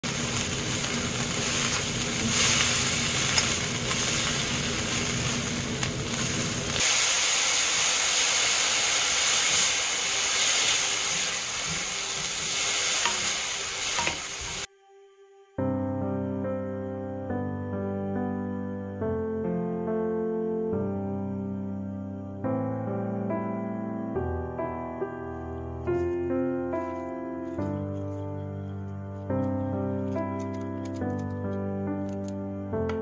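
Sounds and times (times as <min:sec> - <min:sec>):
vegetables sizzling in a pan: 0:00.0 - 0:14.7.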